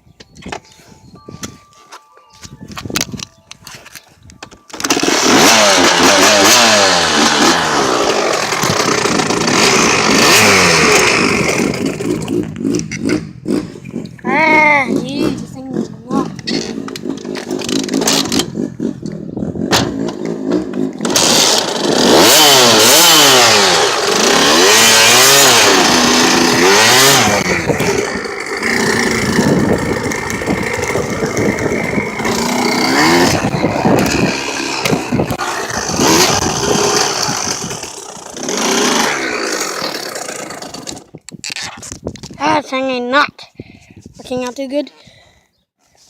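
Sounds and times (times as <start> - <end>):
dirt bike engine revving: 4.8 - 41.1
engine knocks: 25.8 - 39.1.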